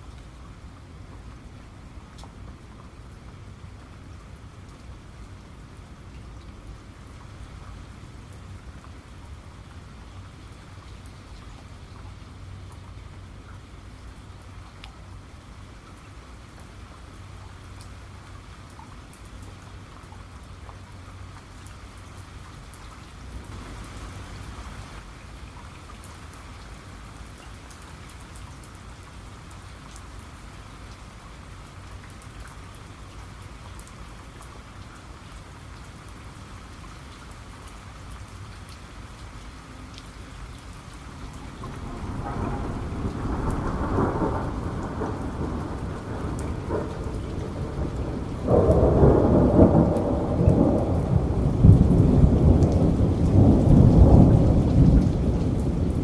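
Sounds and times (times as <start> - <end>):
steady rain: 0.0 - 56.0
raindrop ticks: 2.1 - 3.9, 6.0 - 13.7, 14.4 - 15.1, 15.8 - 24.0, 31.9 - 35.0, 39.9 - 56.0
thunder rolling: 41.6 - 56.0.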